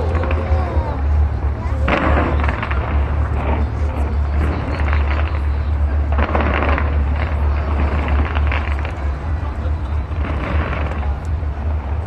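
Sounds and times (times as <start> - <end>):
distant fireworks rumble and crackling: 0.0 - 12.0.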